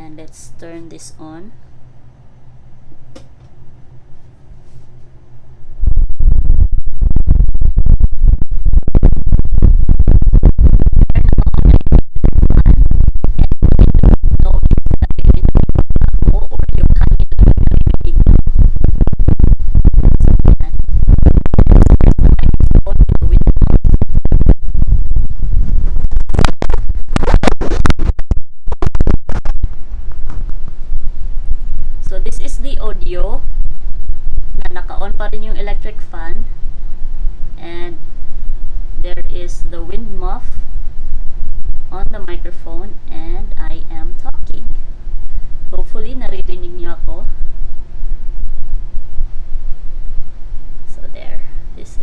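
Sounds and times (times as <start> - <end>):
wind buffeting microphone: 5.7 - 28.2.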